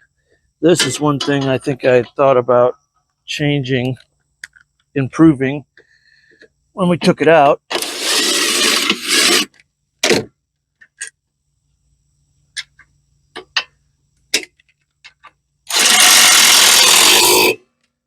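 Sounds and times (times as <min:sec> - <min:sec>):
harsh rubbing noise: 0:07.8 - 0:09.5.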